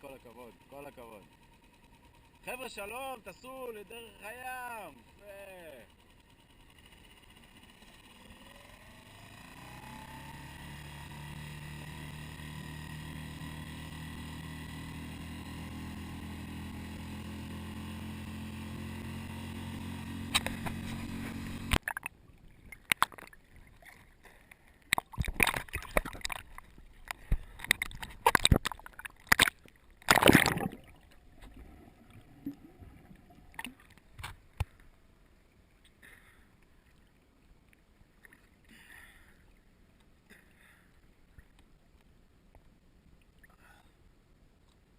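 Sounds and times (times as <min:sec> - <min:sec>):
boat engine running: 0:00.0 - 0:21.9, 0:22.5 - 0:34.8
water sloshing against hull: 0:20.5 - 0:43.6
loud splash: 0:28.2 - 0:31.0.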